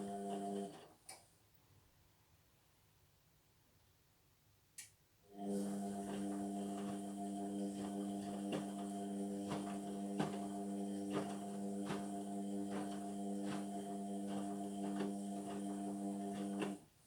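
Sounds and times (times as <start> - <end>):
washing machine humming: 0.0 - 0.8, 5.3 - 16.9.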